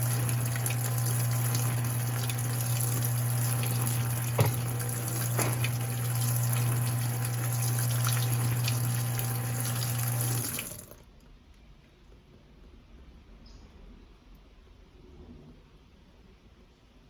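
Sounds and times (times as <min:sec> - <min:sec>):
washing machine water rushing: 0:00.0 - 0:11.0
low electric pump hum: 0:00.0 - 0:11.1
small knock: 0:04.4 - 0:04.7.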